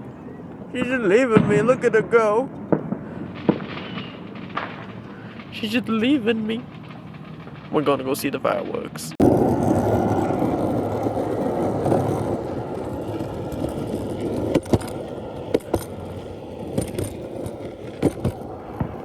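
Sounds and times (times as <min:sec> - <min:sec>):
longboard wheels rolling on pavement: 0:02.5 - 0:19.0.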